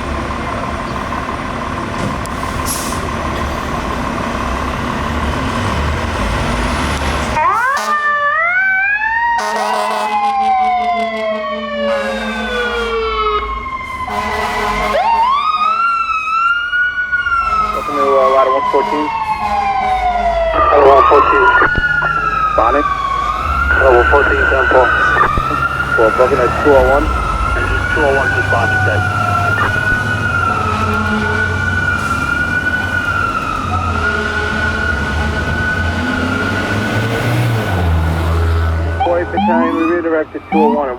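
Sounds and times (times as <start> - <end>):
low engine rumble: 0.0 - 7.4, 17.8 - 36.4
second siren: 7.4 - 40.9
electronic siren wailing: 14.9 - 36.8, 38.9 - 40.9.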